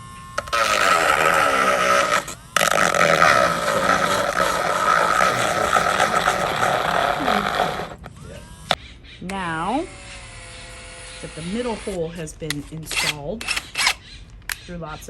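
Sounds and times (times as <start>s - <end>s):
power drill grinding: 0.0s - 8.8s, 9.7s - 14.2s.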